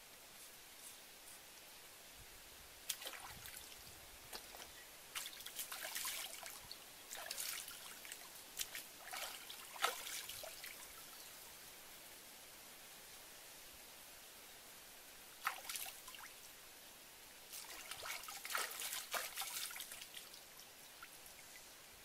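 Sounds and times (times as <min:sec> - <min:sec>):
water splashing: 0:02.9 - 0:11.0, 0:15.4 - 0:16.3, 0:17.5 - 0:20.4.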